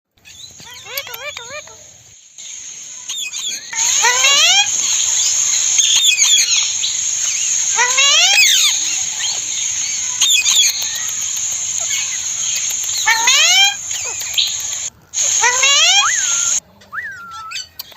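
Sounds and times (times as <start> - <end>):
steady high buzz: 2.2 - 16.6
parrots squawking: 3.1 - 16.6.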